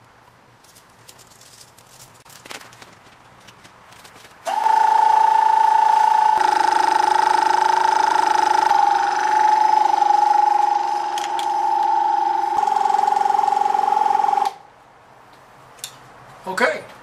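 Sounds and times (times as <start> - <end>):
portable air compressor humming: 4.4 - 14.6.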